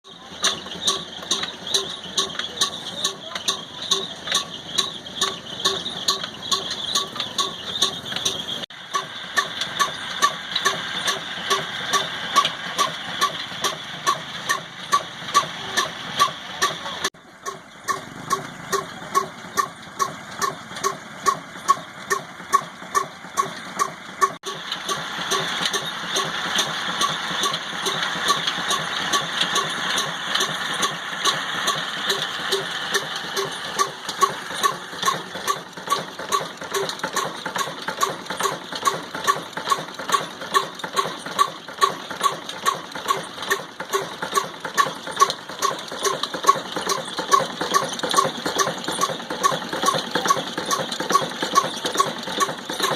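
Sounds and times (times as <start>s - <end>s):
diesel engine thumping: 0.0s - 52.9s.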